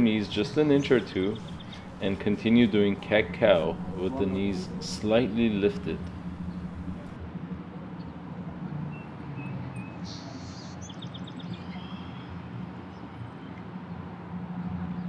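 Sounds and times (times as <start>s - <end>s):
steady low rumble: 0.0s - 7.2s
faint small bird chirps: 9.8s - 12.2s.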